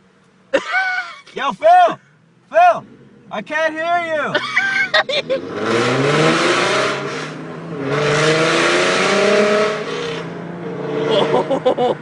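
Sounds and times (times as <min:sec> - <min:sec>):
car engine accelerating hard: 0:02.8 - 0:12.0.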